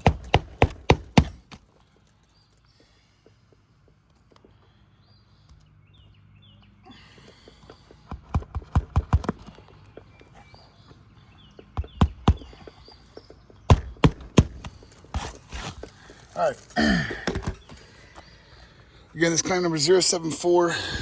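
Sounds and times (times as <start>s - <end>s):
sharp knocks on shingle roof: 0.0s - 1.6s, 7.9s - 10.1s, 11.5s - 15.4s.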